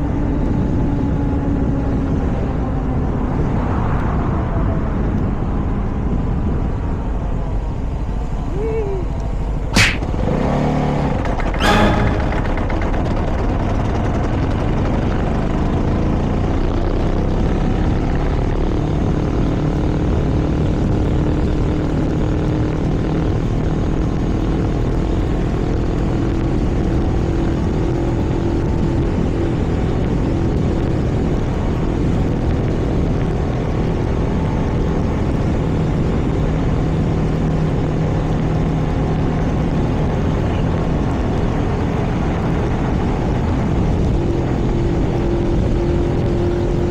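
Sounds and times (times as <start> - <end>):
vehicle engine droning: 0.0 - 46.9
wind and road noise: 0.0 - 46.9
sharp knock: 9.8 - 10.1.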